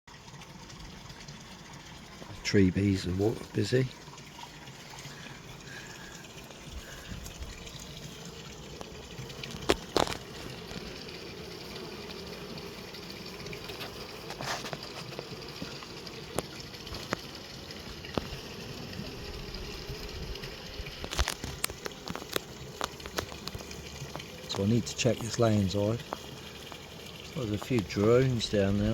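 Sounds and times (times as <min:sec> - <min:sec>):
bees buzzing: 0:02.5 - 0:28.9.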